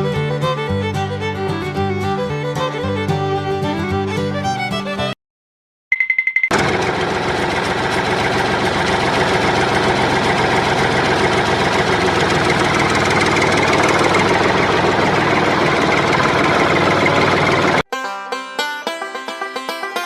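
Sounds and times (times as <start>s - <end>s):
engine running with fast knock: 6.5s - 17.8s.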